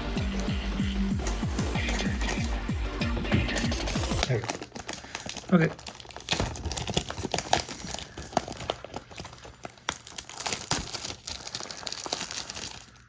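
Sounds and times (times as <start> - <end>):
plastic packaging crinkling: 3.5 - 13.0.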